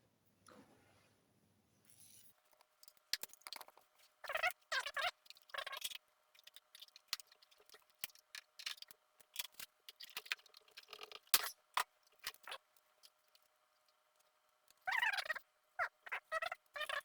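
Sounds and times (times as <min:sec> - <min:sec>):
small clicks and snips: 0:02.4 - 0:15.3.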